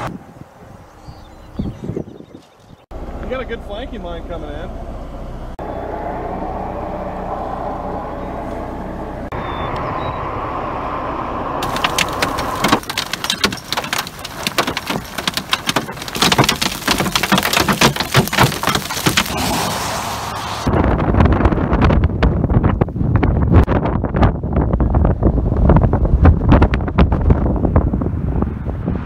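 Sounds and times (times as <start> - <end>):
wind rumble on microphone: 0.0 - 2.9, 11.6 - 29.0
hailstones clattering: 11.6 - 19.5.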